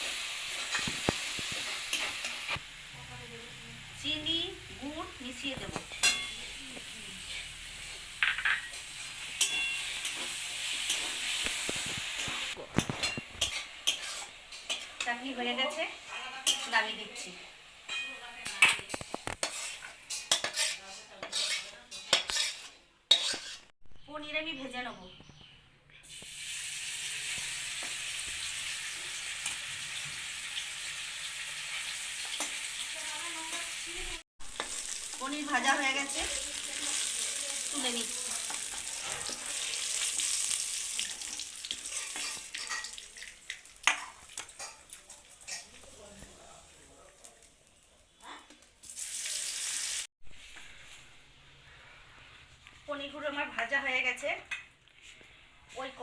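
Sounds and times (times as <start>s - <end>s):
chutney sizzling in a pan: 0.0s - 23.7s, 26.0s - 51.3s
spatula scraping a pan: 8.4s - 15.1s, 15.7s - 23.7s, 38.3s - 40.6s, 41.7s - 43.2s.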